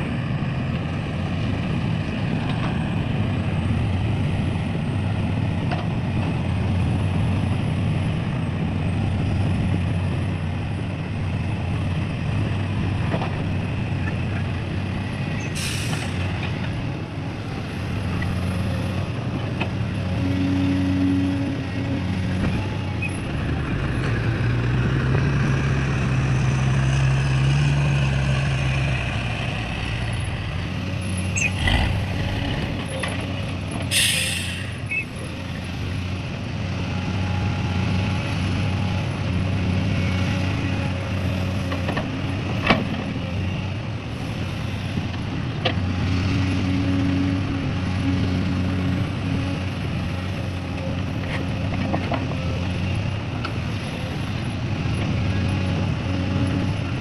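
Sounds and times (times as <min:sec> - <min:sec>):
heavy diesel engines running: 0:00.0 - 0:57.0
hissing burst: 0:33.9 - 0:34.8.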